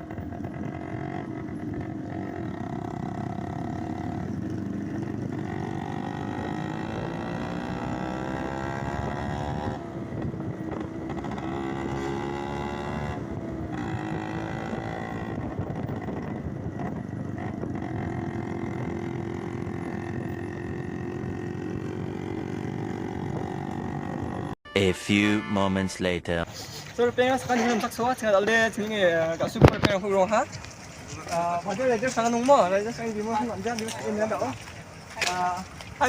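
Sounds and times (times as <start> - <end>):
motorcycle engine accelerating: 0.0 - 24.6.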